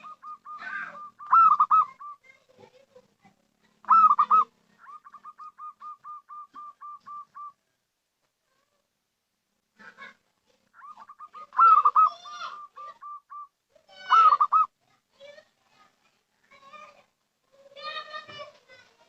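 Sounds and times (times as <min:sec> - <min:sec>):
dove cooing: 0:00.0 - 0:02.5, 0:03.8 - 0:07.6, 0:10.8 - 0:14.7.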